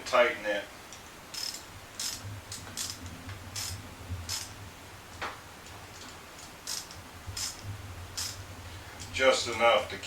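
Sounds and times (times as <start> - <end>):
hand ratchet clicking: 1.3 - 4.5, 6.0 - 7.6, 8.2 - 8.4.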